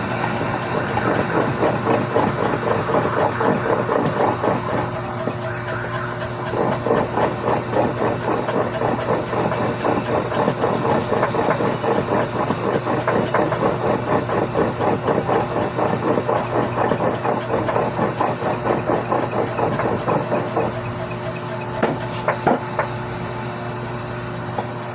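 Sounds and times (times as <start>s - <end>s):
engine idling with clatter: 0.0s - 24.9s
steady low hum: 0.0s - 24.9s.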